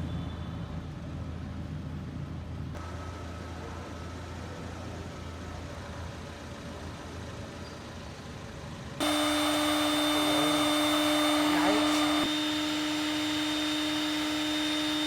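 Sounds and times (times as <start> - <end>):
loud motor whine: 9.0 - 15.0
low background hum: 9.0 - 15.0.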